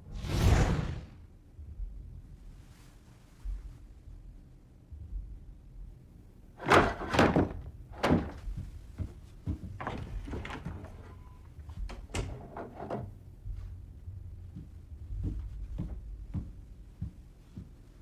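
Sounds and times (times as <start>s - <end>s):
thuds and knocks: 6.6s - 10.9s, 12.9s - 17.8s.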